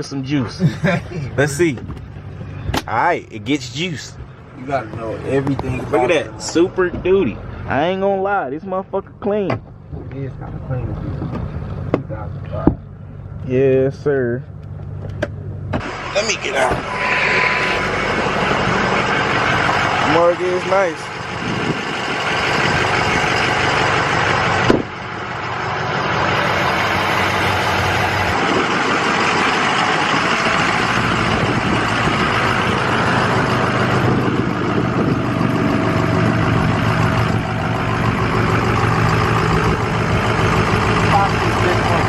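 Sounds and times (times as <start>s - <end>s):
diesel engine idling: 0.0s - 42.0s
sharp thump: 24.7s - 24.9s.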